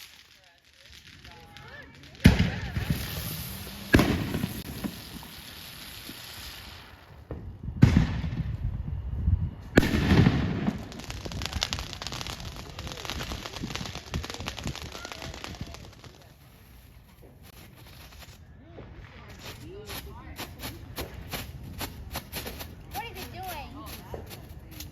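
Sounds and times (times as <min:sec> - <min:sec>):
small crackling firework pops: 0:00.0 - 0:08.6, 0:09.8 - 0:24.9
loud firework bangs: 0:01.2 - 0:08.6, 0:09.8 - 0:16.2.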